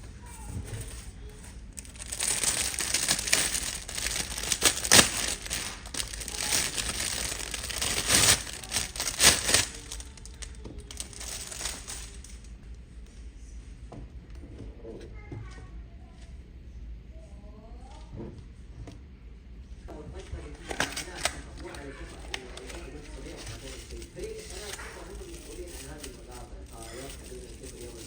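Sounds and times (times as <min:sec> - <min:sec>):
packaging crinkling and rustling: 0:00.4 - 0:12.5, 0:20.2 - 0:28.0.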